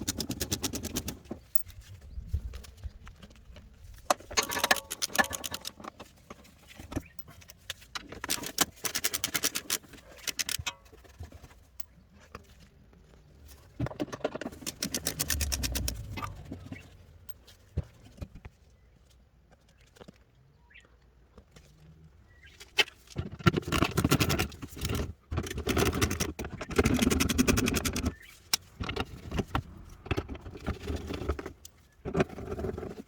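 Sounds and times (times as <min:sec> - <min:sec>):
metallic clicking of hand tools: 0:00.0 - 0:01.8, 0:04.1 - 0:06.0, 0:06.8 - 0:11.1, 0:14.2 - 0:16.6.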